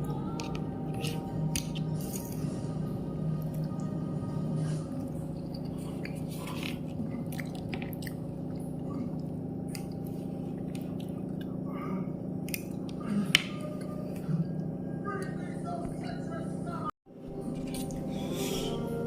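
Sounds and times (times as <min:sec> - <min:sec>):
low hum: 0:00.0 - 0:19.0
person chewing noodles: 0:04.6 - 0:14.6.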